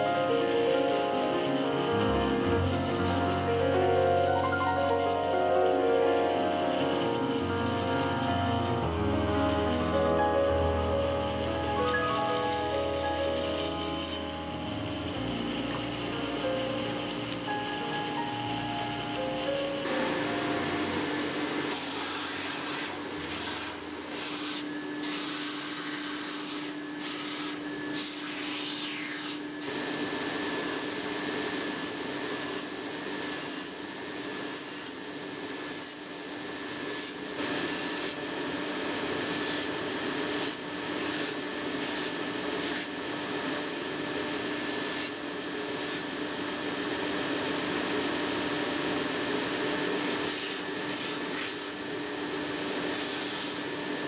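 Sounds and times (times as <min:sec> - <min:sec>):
electric sander humming: 0:00.0 - 0:27.6.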